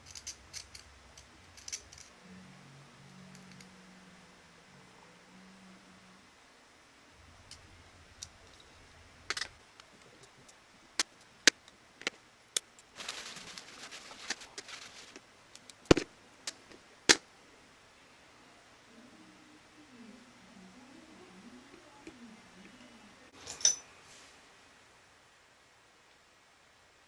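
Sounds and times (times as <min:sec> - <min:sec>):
clicks of small parts and tools: 0:00.0 - 0:02.1, 0:09.3 - 0:12.9
dense rattling: 0:12.8 - 0:15.2.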